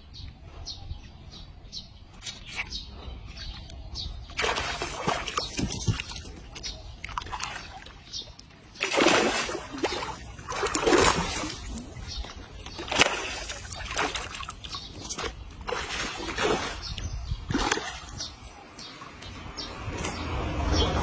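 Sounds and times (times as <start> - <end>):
water splashing and sloshing: 2.1 - 21.0.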